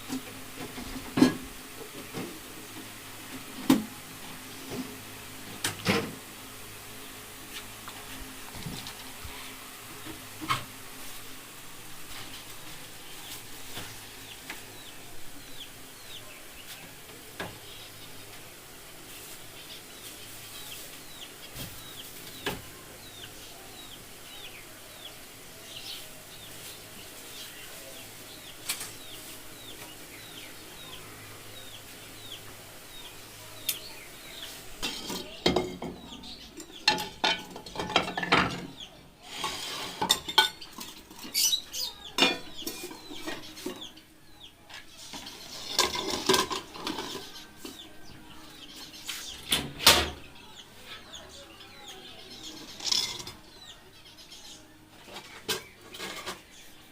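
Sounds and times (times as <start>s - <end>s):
dishes and utensils clattering: 0.0s - 2.4s, 34.8s - 44.0s, 45.1s - 47.9s, 52.6s - 53.6s, 55.1s - 56.6s
small birds chirping: 6.4s - 56.9s.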